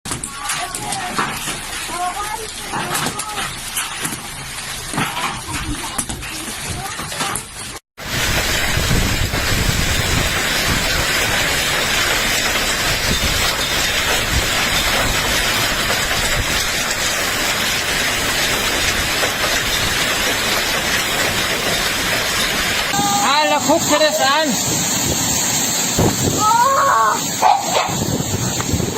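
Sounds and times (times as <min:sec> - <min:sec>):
hail and rain pelting: 0:00.1 - 0:28.9
strong wind: 0:08.0 - 0:17.4, 0:22.6 - 0:28.9.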